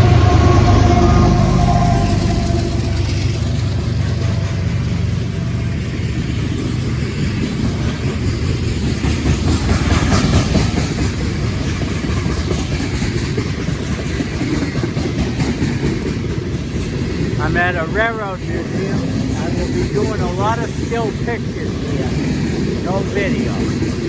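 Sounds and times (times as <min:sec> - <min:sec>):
freight train wheels clattering: 0:00.0 - 0:24.0.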